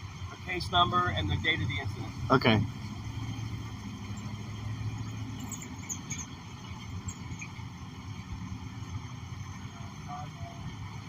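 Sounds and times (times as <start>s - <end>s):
vehicle engine rumbling: 0.0s - 11.0s
faint high squeaks: 5.3s - 6.4s.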